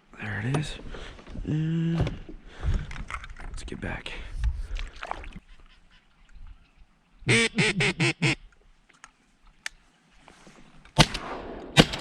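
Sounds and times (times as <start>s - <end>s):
duck call quacks: 7.3s - 8.4s.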